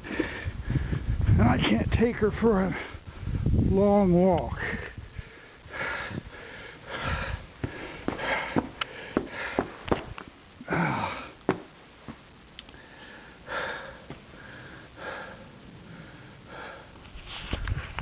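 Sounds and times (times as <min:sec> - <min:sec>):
person breathing through nose: 0:04.6 - 0:09.8.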